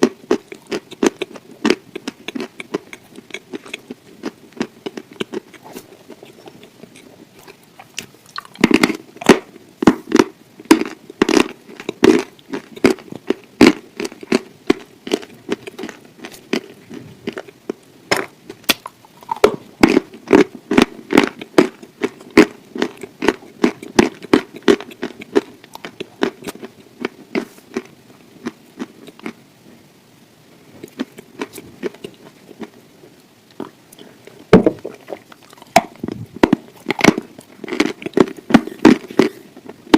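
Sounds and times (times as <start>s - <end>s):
chewing and biting food: 0.0s - 29.4s, 30.8s - 32.8s, 33.5s - 39.9s
sharp chewing clicks: 0.0s - 29.4s, 34.8s - 39.8s.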